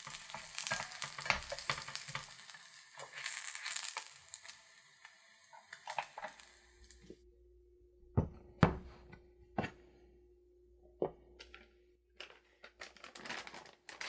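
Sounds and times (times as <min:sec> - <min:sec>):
food sizzling in oil: 0:00.0 - 0:07.2.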